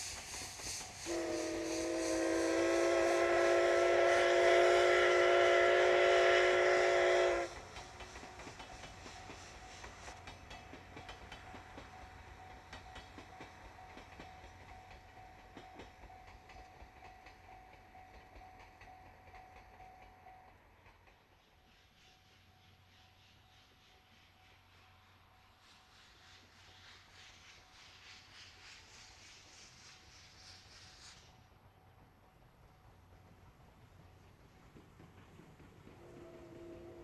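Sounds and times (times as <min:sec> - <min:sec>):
train running noise: 0:00.0 - 0:37.0
steam locomotive whistle: 0:01.0 - 0:07.7, 0:35.9 - 0:37.0.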